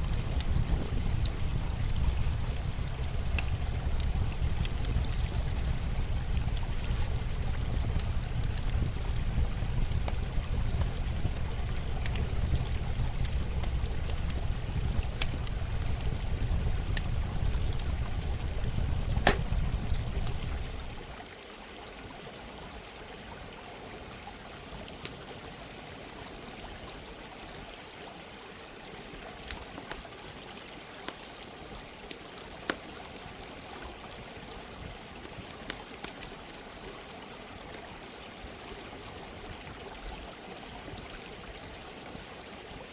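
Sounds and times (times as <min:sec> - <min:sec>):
campfire popping and crackling: 0:00.0 - 0:21.1, 0:35.2 - 0:36.4
heavy low rumble: 0:00.0 - 0:21.1
running water: 0:00.0 - 0:42.9.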